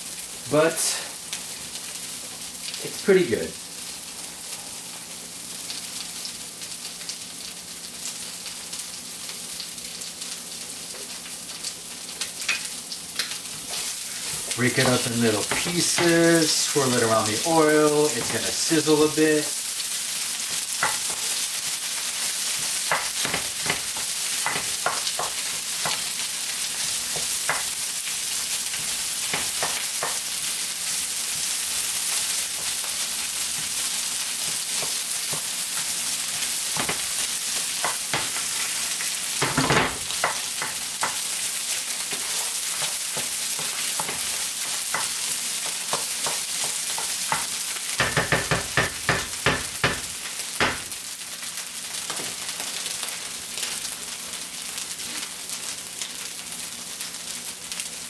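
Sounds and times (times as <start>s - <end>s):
food sizzling in a frying pan: 0.0s - 58.0s
wooden spoon scraping and tapping pan: 22.6s - 26.0s, 42.1s - 50.9s.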